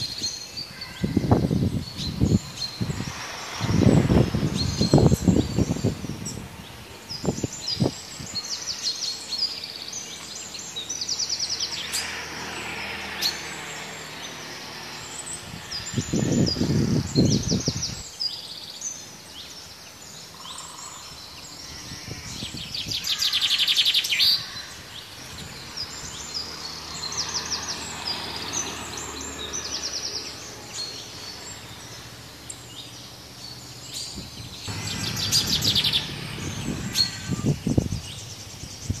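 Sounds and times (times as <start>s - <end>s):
birds chirping and calling: 0.0s - 39.0s
loud rapid bird trills: 20.2s - 39.0s
low rumble: 34.7s - 37.4s.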